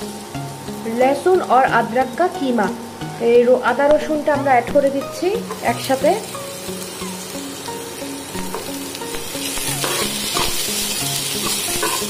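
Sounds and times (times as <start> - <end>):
onions sizzling in hot oil: 0.0 - 12.0
steel spoon scraping a pan: 9.6 - 12.0.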